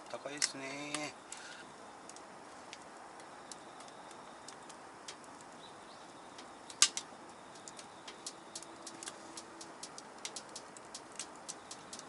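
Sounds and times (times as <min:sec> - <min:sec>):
firewood crackling in a stove: 0:00.0 - 0:12.0
loud wood crack: 0:06.7 - 0:12.0.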